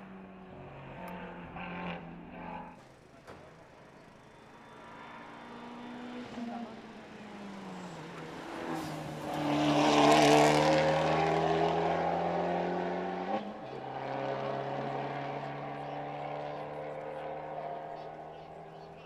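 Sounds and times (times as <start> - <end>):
race car accelerating past: 0.0 - 19.0.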